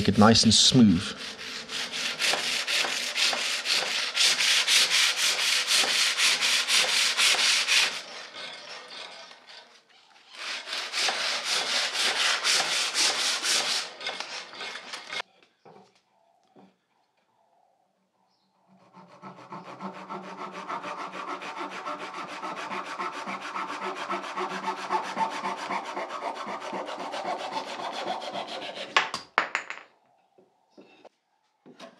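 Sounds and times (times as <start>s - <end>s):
sandpaper rubbing on wood: 0.9s - 8.3s, 10.4s - 15.2s, 19.3s - 29.0s.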